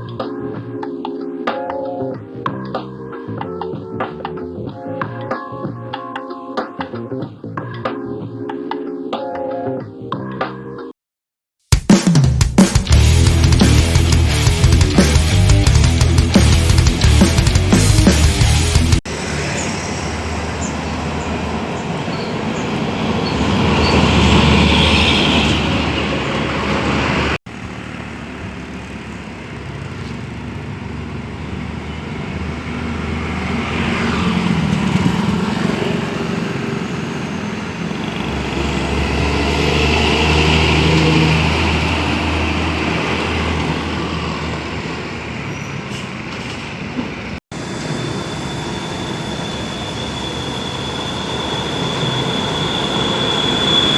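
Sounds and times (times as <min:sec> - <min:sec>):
diesel trucks passing: 0:13.0 - 0:53.9.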